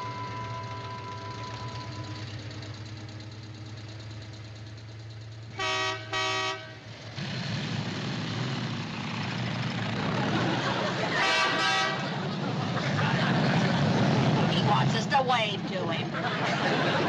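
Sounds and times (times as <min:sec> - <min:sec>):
vehicle horn toots: 0:00.0 - 0:02.1, 0:05.6 - 0:06.8, 0:11.2 - 0:12.1
truck engine running: 0:00.0 - 0:17.0.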